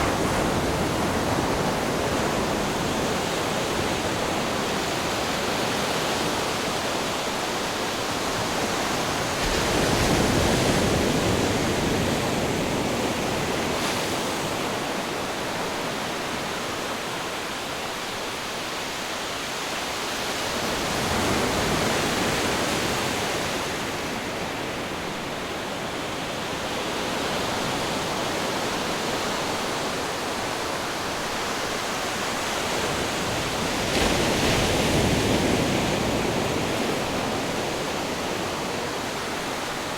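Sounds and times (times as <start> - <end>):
ocean surf breaking waves: 19.8 - 39.9.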